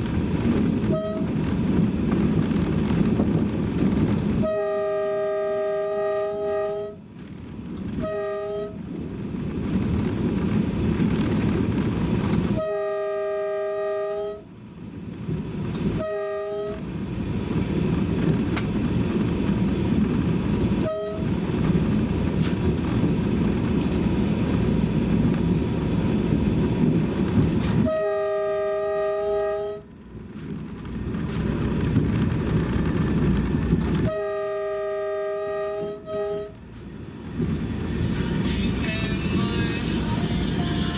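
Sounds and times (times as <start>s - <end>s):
moving train rumble: 0.0s - 40.9s
train horn blasts: 0.8s - 1.5s, 4.4s - 7.1s, 7.9s - 8.9s, 12.5s - 14.6s, 15.9s - 16.9s, 20.8s - 21.4s, 27.8s - 30.0s, 34.0s - 36.8s.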